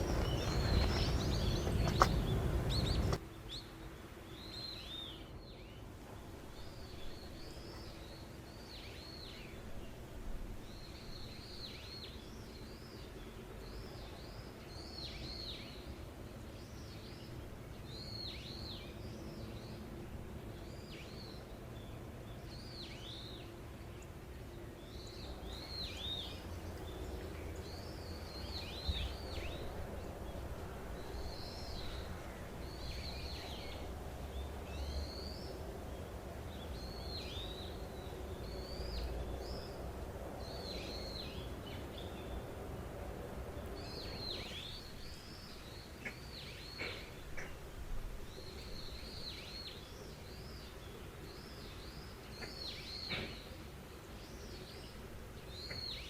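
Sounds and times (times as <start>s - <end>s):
small bird chirping: 0.0s - 3.6s.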